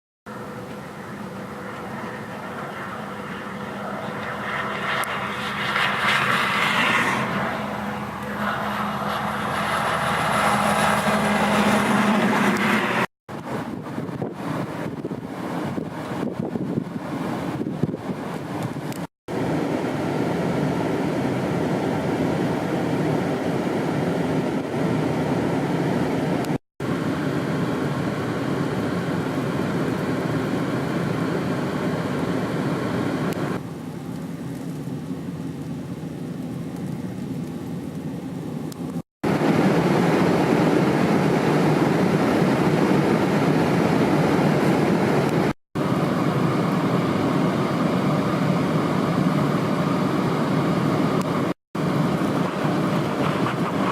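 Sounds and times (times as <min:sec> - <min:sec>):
highway traffic noise: 0:00.3 - 0:53.9
gusty wind on microphone: 0:00.9 - 0:20.6, 0:39.2 - 0:53.9.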